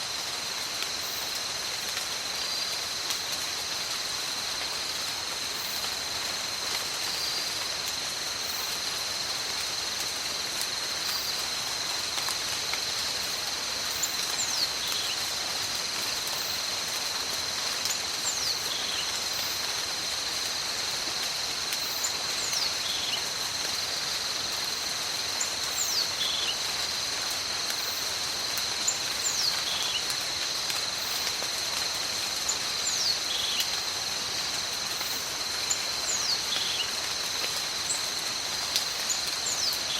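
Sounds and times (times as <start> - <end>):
high insect drone: 0.0 - 39.9
rain: 0.0 - 39.9.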